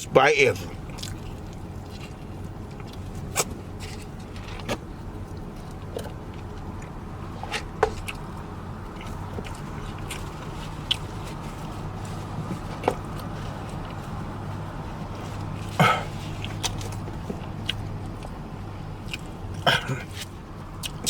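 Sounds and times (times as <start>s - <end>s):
idling vehicle engine hum: 0.0s - 21.0s
person chewing: 0.8s - 4.7s, 7.6s - 12.1s, 15.4s - 21.0s
mouth clicks and smacks: 19.0s - 21.0s.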